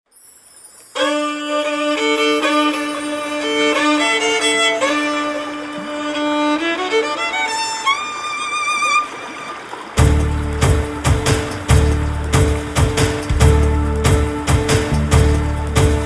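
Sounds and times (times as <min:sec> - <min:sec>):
slow violin melody: 0:01.0 - 0:11.3
held low note: 0:10.0 - 0:16.0.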